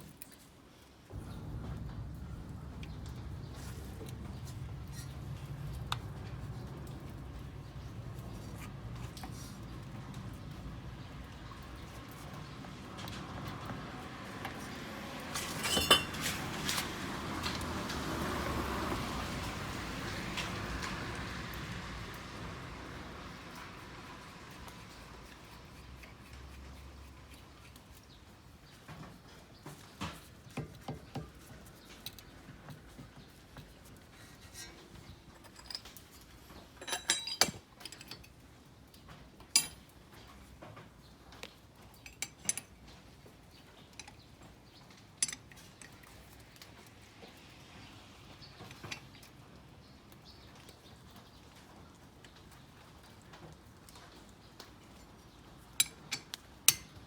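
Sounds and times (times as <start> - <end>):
metal tools clinking: 15.4 - 16.8, 34.5 - 38.4, 39.5 - 40.3, 42.0 - 42.9, 45.2 - 46.2, 55.8 - 57.0.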